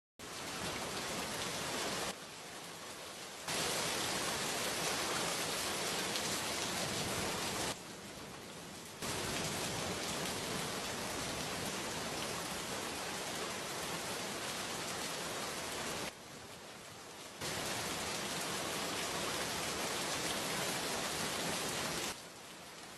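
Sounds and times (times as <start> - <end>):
heavy rain: 0.2 - 22.9.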